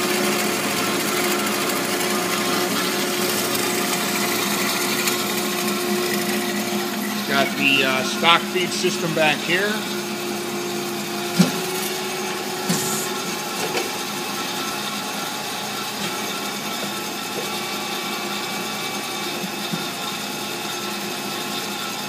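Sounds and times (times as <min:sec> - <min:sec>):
band saw machine hum: 0:00.0 - 0:22.0
sharp machine knock: 0:12.6 - 0:13.1.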